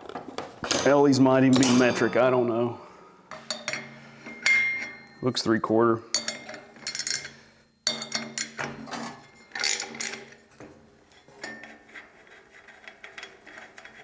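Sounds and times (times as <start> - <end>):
metal tools clanking on steel: 0.6 - 10.4.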